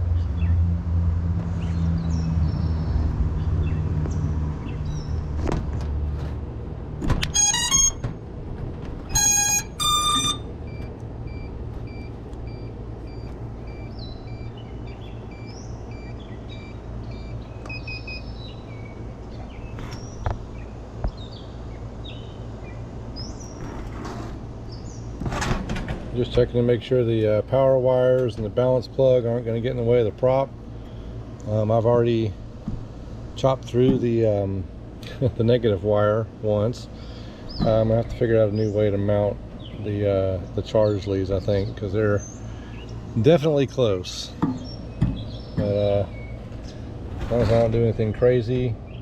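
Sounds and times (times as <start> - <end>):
birds chirping: 1.6 - 5.4, 9.1 - 23.7, 36.5 - 49.0
drone motor startup beeps: 7.3 - 8.1, 9.1 - 18.3
short beeps: 7.3 - 8.1, 9.1 - 14.5.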